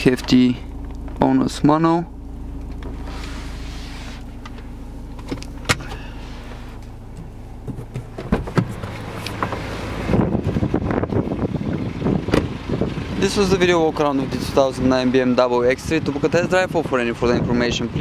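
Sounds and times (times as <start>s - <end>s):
diesel engine idling: 0.0s - 18.0s
rustling: 2.5s - 9.7s.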